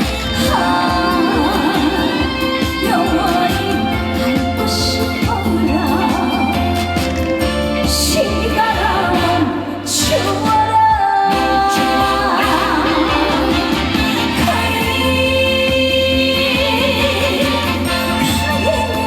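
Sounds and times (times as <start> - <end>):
amplified band accompaniment: 0.0 - 19.0
woman singing: 0.0 - 19.0.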